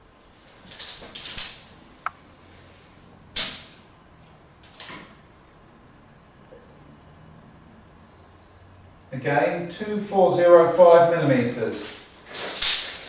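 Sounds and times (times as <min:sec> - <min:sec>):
tape measure scraping rattles: 0:11.7 - 0:13.0.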